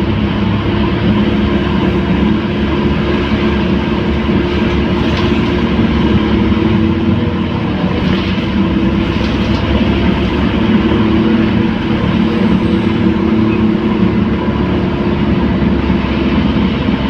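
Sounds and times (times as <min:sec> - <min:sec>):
bus diesel engine running: 0:00.0 - 0:17.0
low rumble of road noise: 0:00.0 - 0:17.0.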